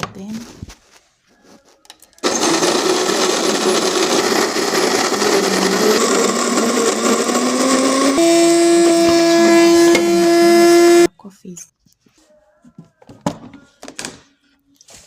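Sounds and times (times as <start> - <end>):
electric coffee grinder grinding: 2.2 - 11.1.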